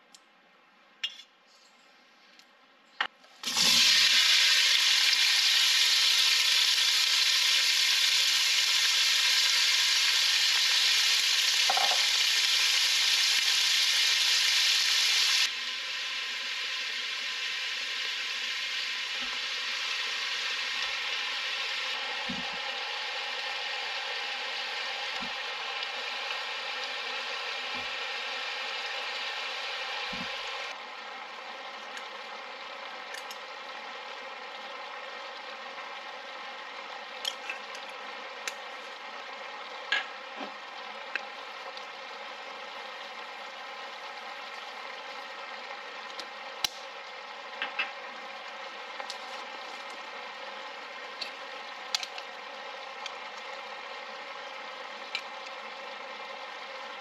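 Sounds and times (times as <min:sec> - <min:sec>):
food sizzling in a pot: 0:03.4 - 0:30.8.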